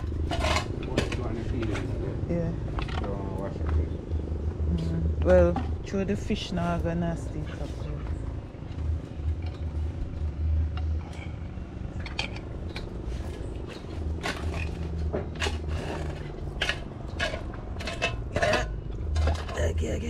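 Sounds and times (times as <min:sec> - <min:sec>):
kitchenware clattering and scraping: 0:00.0 - 0:03.8, 0:10.8 - 0:20.0
low rumble: 0:00.0 - 0:20.0.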